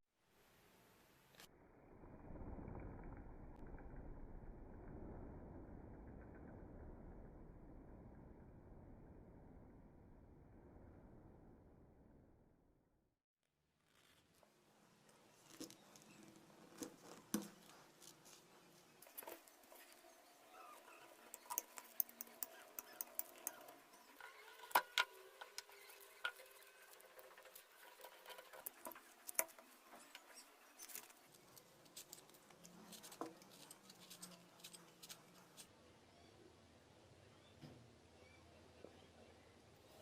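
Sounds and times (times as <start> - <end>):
rustling of craft materials: 13.8 - 35.7.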